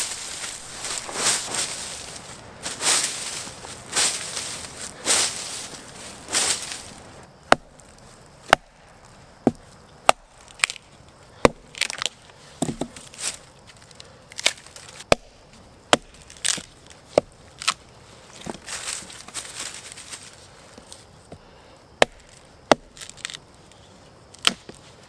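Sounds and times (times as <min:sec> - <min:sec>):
brushing swishes: 0:00.0 - 0:07.2
wood being chopped: 0:00.0 - 0:08.8, 0:09.4 - 0:10.8, 0:11.4 - 0:13.1, 0:14.4 - 0:17.8, 0:22.0 - 0:23.4, 0:24.4 - 0:24.8.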